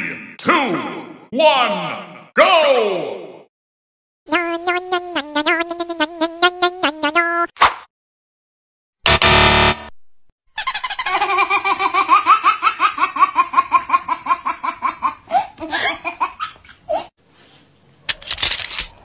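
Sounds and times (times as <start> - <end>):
high-pitched rapid laugh: 10.6 - 16.4.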